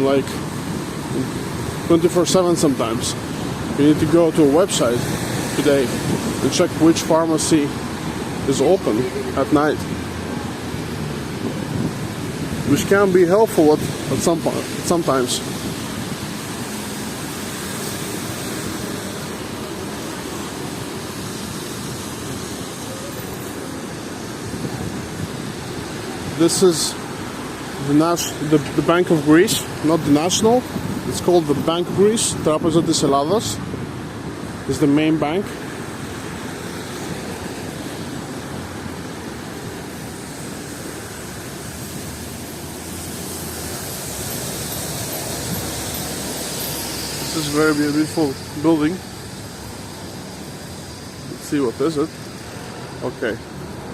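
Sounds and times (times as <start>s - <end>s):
road traffic rumble: 0.0s - 53.9s
even hiss: 36.8s - 53.8s.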